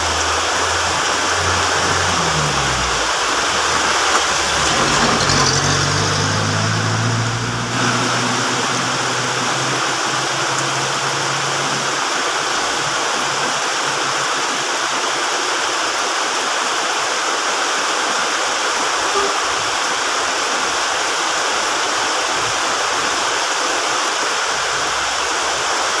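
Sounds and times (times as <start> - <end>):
low hum: 0.0 - 13.8
heavy rain falling: 0.0 - 26.0.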